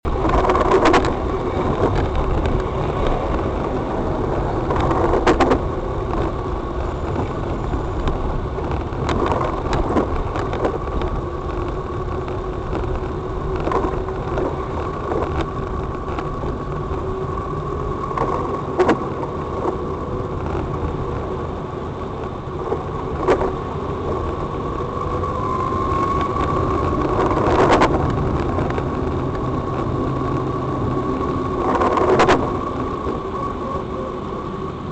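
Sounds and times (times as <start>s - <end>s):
car engine and road rumble: 0.0s - 34.9s.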